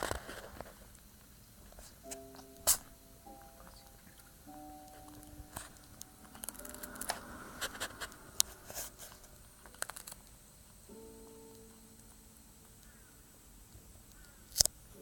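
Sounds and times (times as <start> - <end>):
kitten crunching cracker: 4.9 - 10.3.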